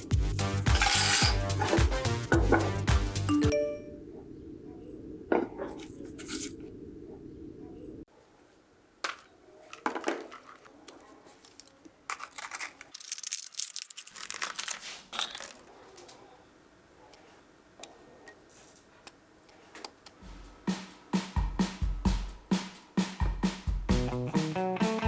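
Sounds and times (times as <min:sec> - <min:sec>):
hands scraping and crinkling: 0:09.1 - 0:16.2.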